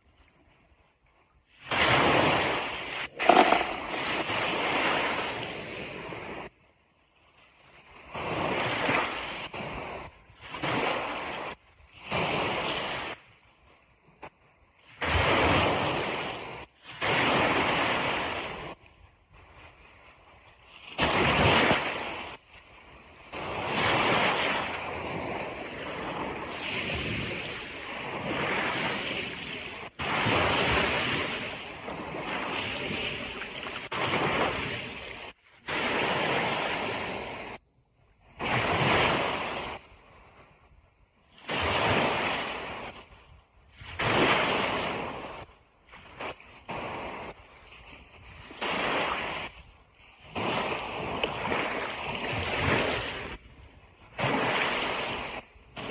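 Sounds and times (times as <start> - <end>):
ocean waves breaking on beach: 3.1 - 6.5, 23.6 - 37.6, 38.4 - 40.4, 41.3 - 55.9.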